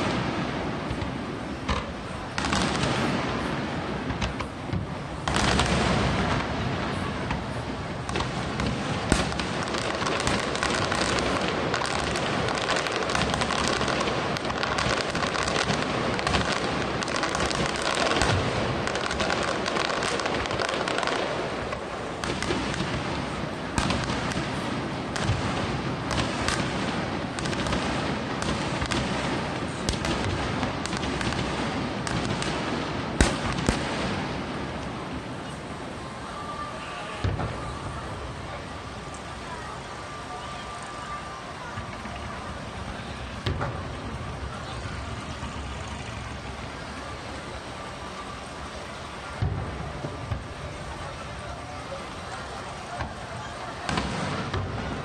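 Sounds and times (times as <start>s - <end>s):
sharp firework booms: 0.0s - 34.8s, 37.2s - 38.1s
fireworks bursting and crackling: 0.0s - 55.0s.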